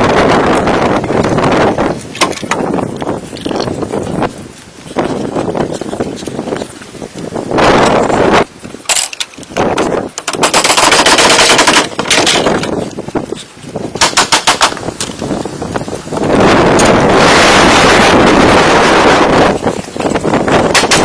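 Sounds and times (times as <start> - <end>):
rapid repeated knocks: 14.0 - 14.9, 20.5 - 21.0.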